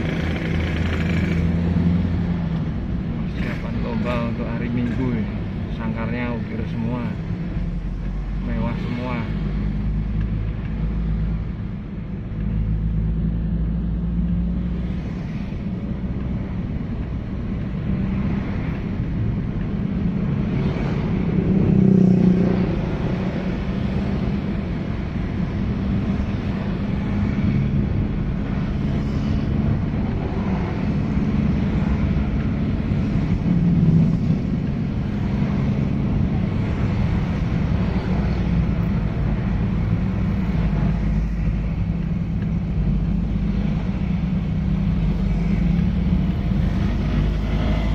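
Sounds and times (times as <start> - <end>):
vehicle engine running: 0.0 - 4.1
road rumble: 0.0 - 47.9.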